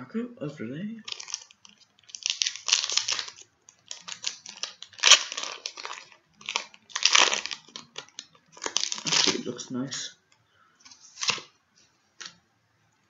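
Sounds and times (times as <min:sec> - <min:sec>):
wrapper tearing with sharp crack: 0:01.0 - 0:09.5, 0:11.1 - 0:11.5
foil wrapper crinkling: 0:01.0 - 0:09.7, 0:10.9 - 0:11.5.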